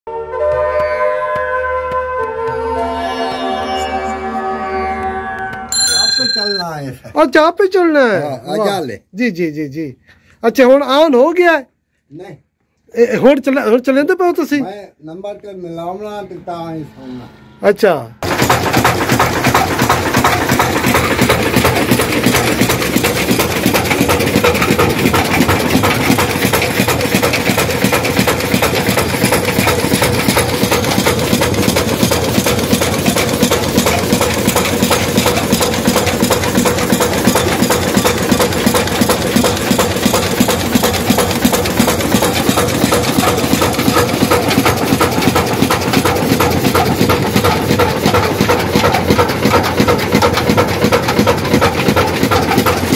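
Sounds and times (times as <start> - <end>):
stationary engine running: 18.2 - 52.9.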